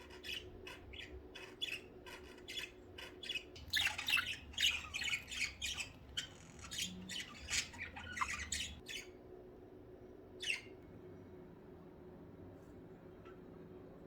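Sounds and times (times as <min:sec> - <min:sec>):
budgerigars squawking and chirping: 0:00.0 - 0:09.1.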